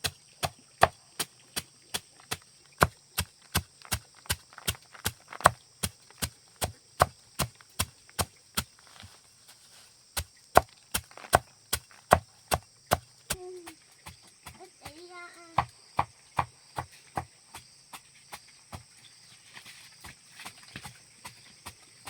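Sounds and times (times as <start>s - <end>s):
blade chopping wood: 0.0s - 9.2s, 10.1s - 18.1s.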